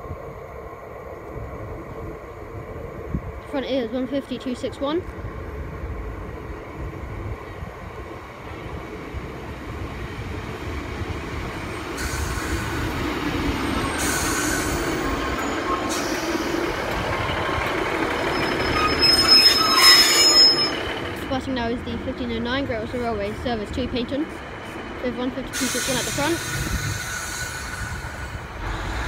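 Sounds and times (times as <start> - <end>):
diesel train arriving: 0.0 - 29.0
wheel and brake squeal: 17.4 - 21.0.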